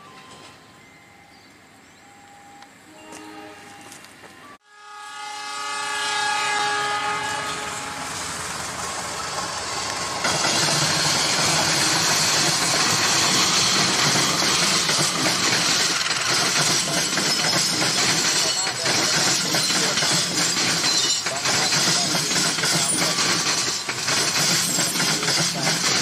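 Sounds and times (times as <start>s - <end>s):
locomotive air horn: 2.9s - 3.7s, 4.6s - 8.5s
train running noise: 5.2s - 26.0s.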